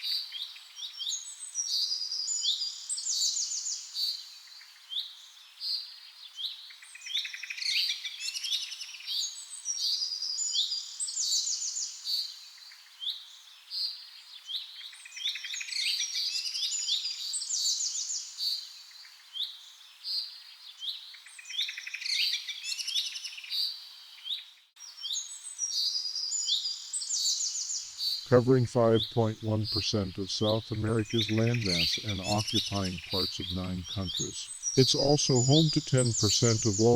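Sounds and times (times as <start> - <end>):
birds chirping: 27.8 - 36.9.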